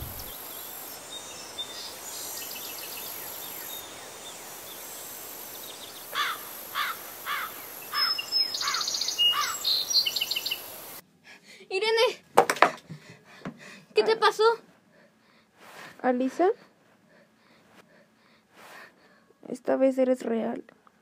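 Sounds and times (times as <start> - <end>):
steady high hiss: 0.0 - 11.1
high trilling bird chirps: 6.2 - 10.7.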